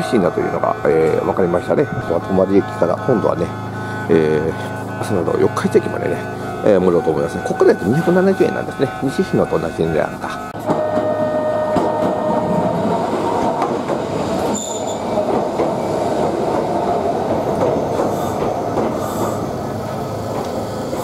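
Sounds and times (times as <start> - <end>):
train cars rumbling past: 0.0 - 21.0
train wheels squealing: 10.8 - 16.2, 17.5 - 21.0.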